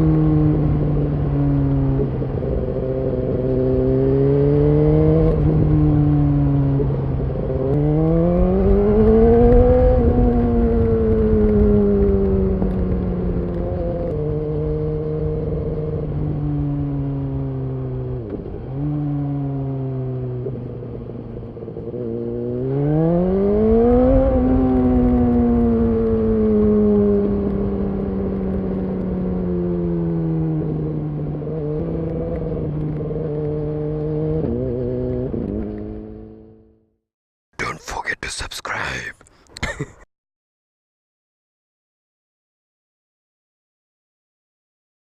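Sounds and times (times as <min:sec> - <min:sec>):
motorcycle engine revving: 0:21.9 - 0:36.8.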